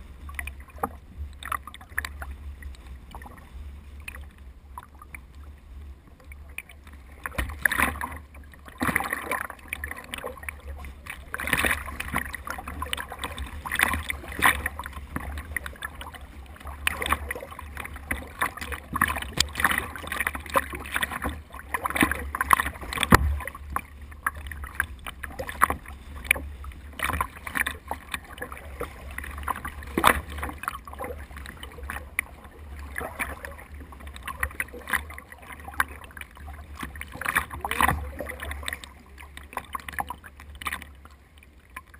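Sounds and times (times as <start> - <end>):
steady low rumble: 0.0 - 41.9
water splashing around a boat: 0.0 - 41.9.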